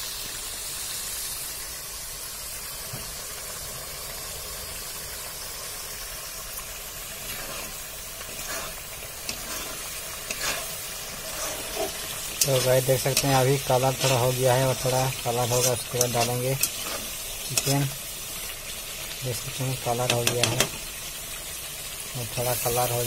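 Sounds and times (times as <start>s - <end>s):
onions sizzling in hot oil: 0.0s - 23.0s
spatula scraping a pan: 7.2s - 18.0s.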